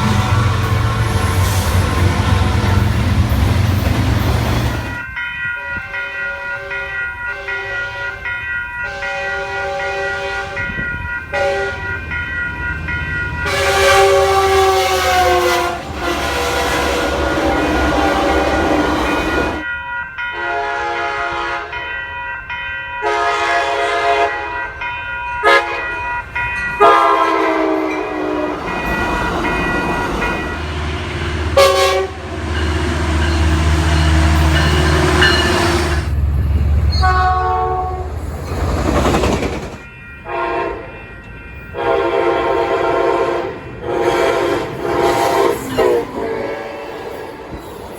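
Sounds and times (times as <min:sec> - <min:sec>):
deep locomotive rumble: 0:00.0 - 0:05.2, 0:09.5 - 0:19.7, 0:25.4 - 0:47.9
passing rail cars rushing: 0:00.0 - 0:47.9
locomotive air horn blasts: 0:08.8 - 0:12.0, 0:13.4 - 0:19.6, 0:20.4 - 0:21.8, 0:23.0 - 0:24.6, 0:25.4 - 0:26.0, 0:26.8 - 0:28.9, 0:31.1 - 0:36.1, 0:36.9 - 0:38.2, 0:40.2 - 0:40.9, 0:41.8 - 0:47.0.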